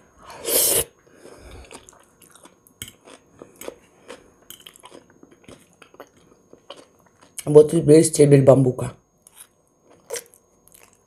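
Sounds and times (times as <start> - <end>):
chewing crunches: 1.4 - 7.5, 9.3 - 11.0.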